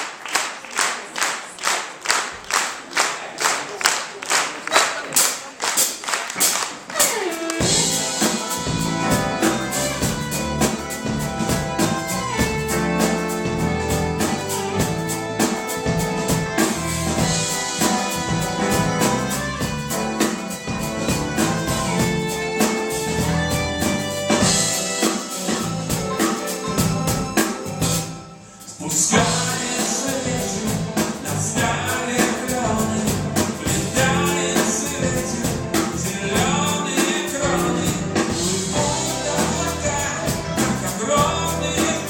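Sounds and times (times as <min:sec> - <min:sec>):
people clapping: 0:00.0 - 0:07.7
drum kit beat: 0:05.0 - 0:42.0
live pop band playing: 0:05.0 - 0:42.0.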